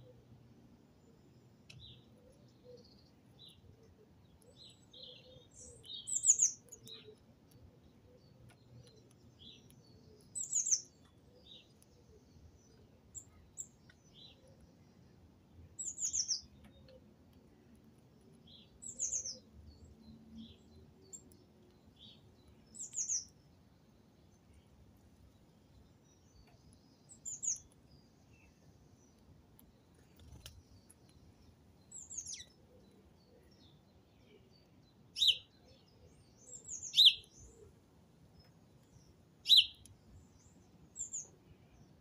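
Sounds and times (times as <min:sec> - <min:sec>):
faint short bird chirps: 0:39.5 - 0:39.8.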